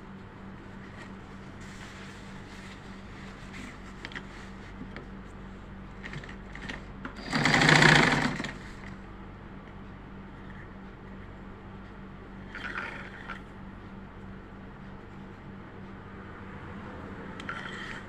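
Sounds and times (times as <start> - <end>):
sewing machine stitching: 6.0 - 8.9.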